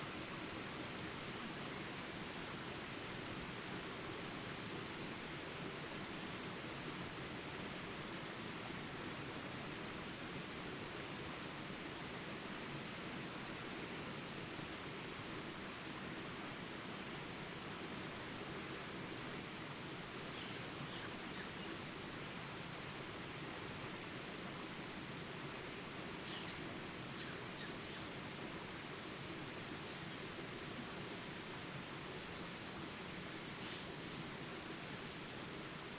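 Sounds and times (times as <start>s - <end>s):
crickets trilling: 0.0s - 13.6s, 19.5s - 22.2s, 26.2s - 30.8s, 31.4s - 35.9s
soft background hiss: 0.0s - 35.9s.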